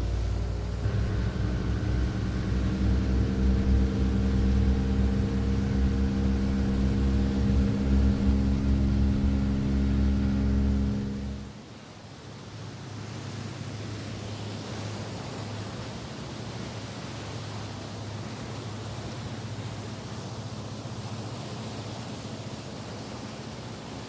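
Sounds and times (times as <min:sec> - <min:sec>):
tugboat engine drone: 0:00.0 - 0:11.8.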